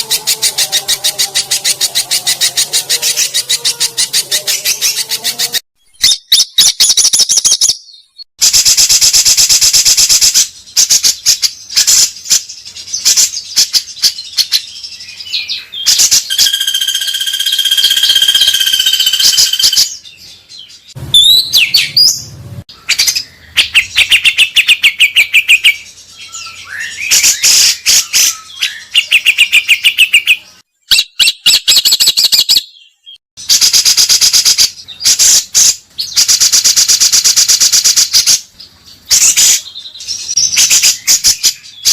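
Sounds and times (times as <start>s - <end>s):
songbird trills and whistles: 10.1s - 41.9s.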